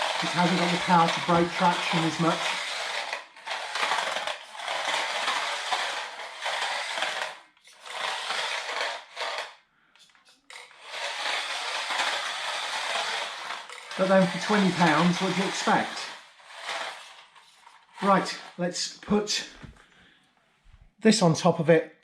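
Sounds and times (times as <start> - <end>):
hard tyres scrubbing on floor: 0.0 - 18.6
small motor and gears whirring: 0.0 - 19.4.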